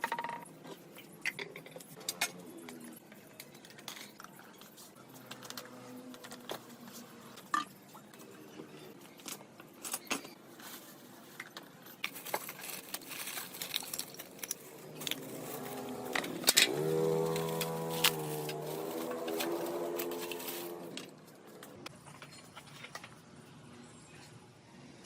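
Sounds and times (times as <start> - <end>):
metal parts and tools clinking: 11.4 - 23.1.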